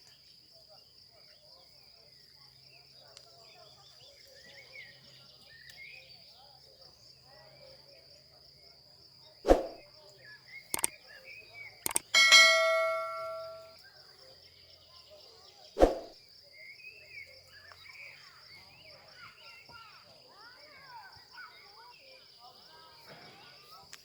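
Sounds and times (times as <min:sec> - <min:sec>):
bird chirps: 0:11.9 - 0:13.7
metal objects knocking: 0:11.9 - 0:13.7
ringing metal clang: 0:11.9 - 0:13.7.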